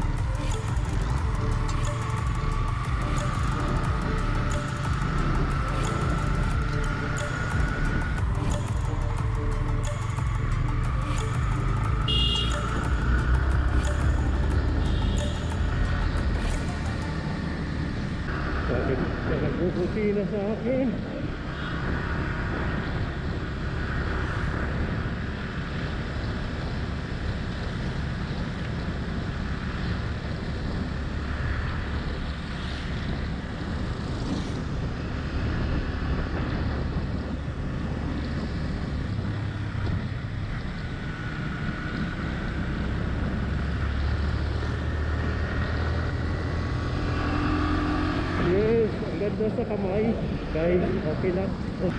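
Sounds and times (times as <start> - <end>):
motorcycle engine running: 0.0 - 18.7
faint engine whine: 0.0 - 51.9
wind rushing over microphone: 16.0 - 51.9.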